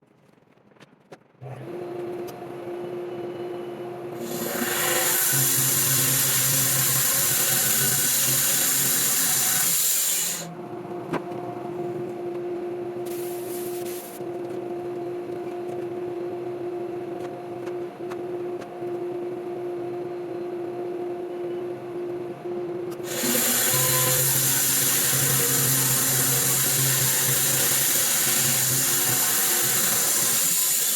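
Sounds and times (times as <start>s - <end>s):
sawmill humming idle: 4.1s - 10.6s, 23.0s - 30.9s
sawmill cutting log: 4.2s - 10.5s, 23.0s - 30.9s.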